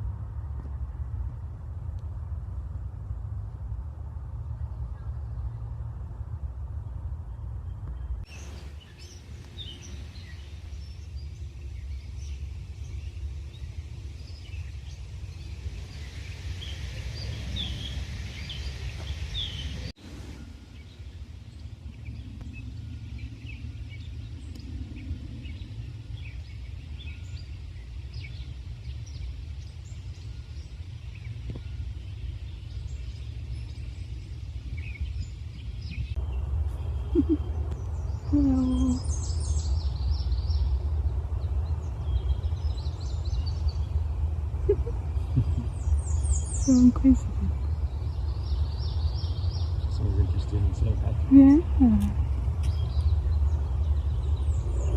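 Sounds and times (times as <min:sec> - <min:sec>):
steady low rumble: 0:00.0 - 0:54.9
bird chirps: 0:07.9 - 0:40.8.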